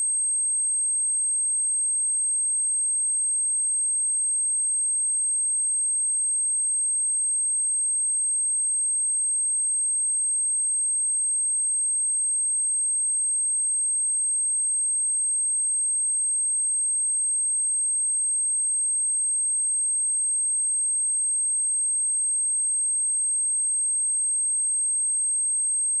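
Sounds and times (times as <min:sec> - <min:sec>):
high-pitched sine-wave test tone: 0:00.0 - 0:26.0.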